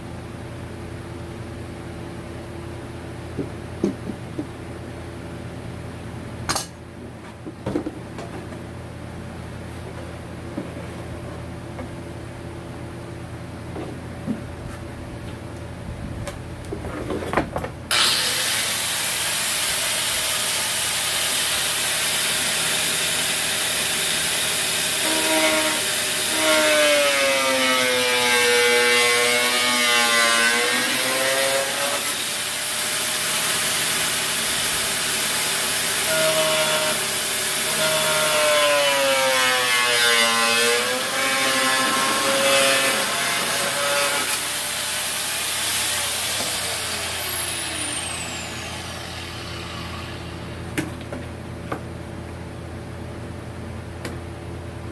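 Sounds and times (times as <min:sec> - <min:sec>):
power saw cutting: 0:17.9 - 0:50.8
saw squealing: 0:24.9 - 0:27.1, 0:45.8 - 0:50.6.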